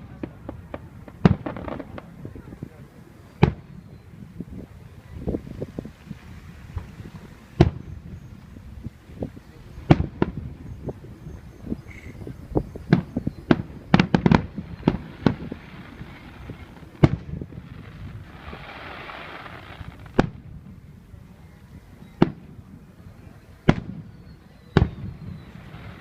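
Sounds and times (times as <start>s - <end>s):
fireworks bangs: 0.0s - 3.8s, 4.5s - 8.3s, 9.2s - 11.0s, 12.7s - 20.8s, 23.6s - 26.0s
fireworks hiss: 0.3s - 20.3s, 24.8s - 26.0s.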